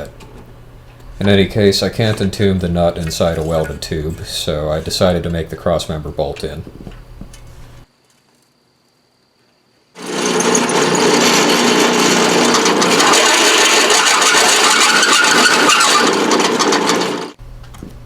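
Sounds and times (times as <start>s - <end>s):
power drill boring through steel: 10.0s - 17.4s.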